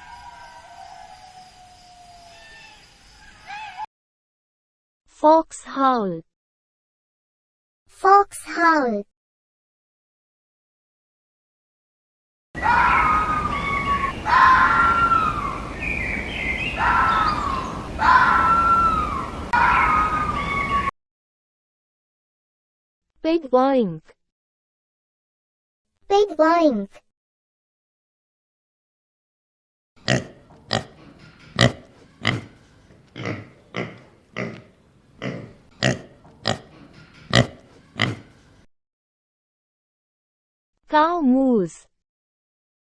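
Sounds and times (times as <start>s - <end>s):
fox howling: 12.6s - 20.9s
steady background hiss: 12.6s - 20.9s
pig grunting: 30.0s - 38.4s.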